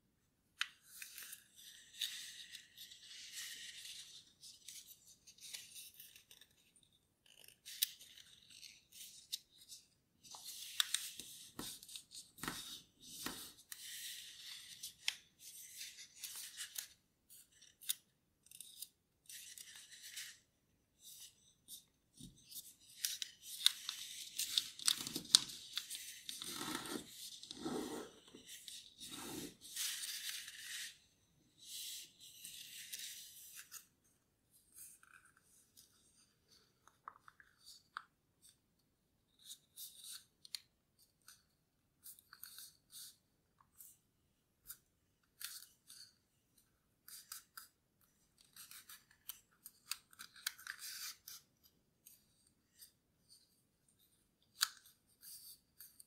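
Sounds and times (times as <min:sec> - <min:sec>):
paper crinkling and rustling: 0:22.5 - 0:30.9.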